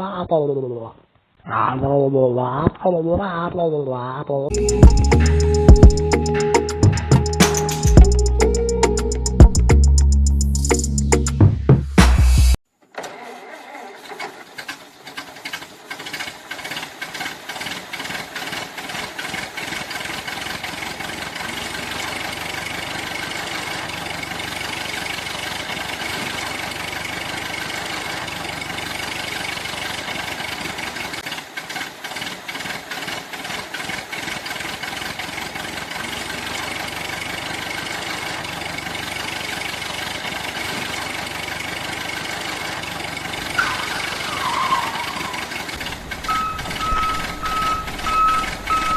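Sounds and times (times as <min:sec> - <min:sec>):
motor running: 0:45.7 - 0:48.9.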